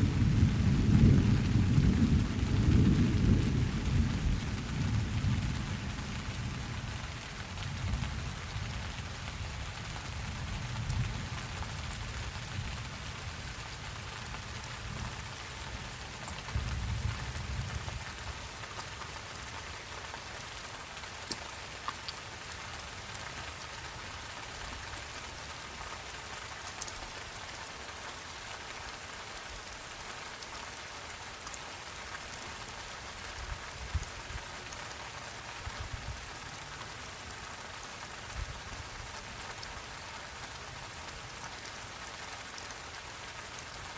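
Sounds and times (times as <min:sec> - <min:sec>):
low thunder rumble: 0:00.0 - 0:06.8
rain falling: 0:00.0 - 0:43.9.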